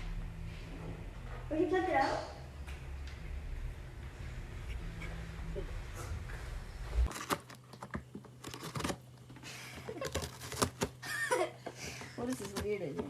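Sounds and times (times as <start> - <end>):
irregular sharp clicks and crinkling: 7.1 - 11.0, 12.0 - 13.0.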